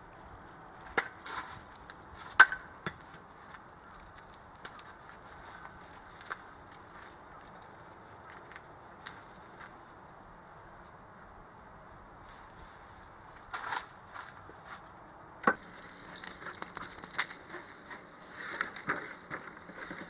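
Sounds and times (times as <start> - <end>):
bonfire crackling: 1.6 - 9.9, 15.6 - 20.0
low hiss: 5.3 - 19.3.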